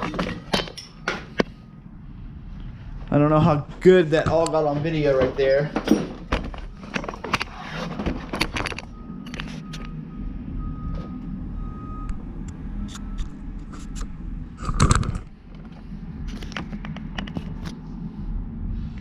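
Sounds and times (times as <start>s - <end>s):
metal tools clicking and clinking: 0.0s - 1.4s
low shop hum: 0.0s - 19.0s.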